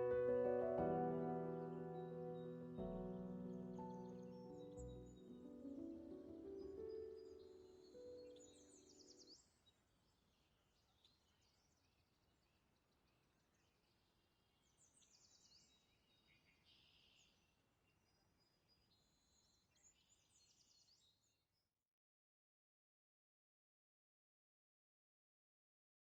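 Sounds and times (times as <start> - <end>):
background music: 0.0 - 8.8
songbirds chirping: 0.0 - 21.4.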